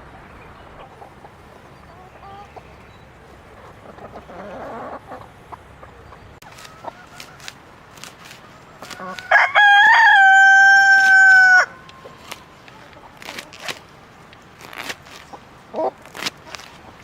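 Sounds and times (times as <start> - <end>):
chickens clucking: 0.0 - 13.9, 15.2 - 17.0
scratchy rustle: 6.4 - 9.4, 12.1 - 13.9, 14.5 - 17.0.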